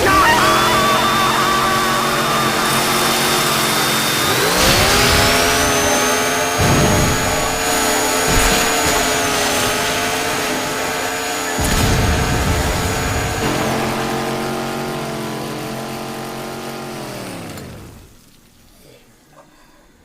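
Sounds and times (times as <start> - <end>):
chainsaw motor revving: 0.0 - 18.4
dull thumps: 4.6 - 10.9.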